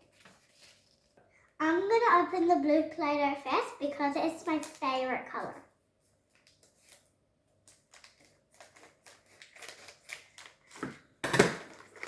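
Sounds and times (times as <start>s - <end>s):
plastic packaging crinkling: 6.2s - 12.0s.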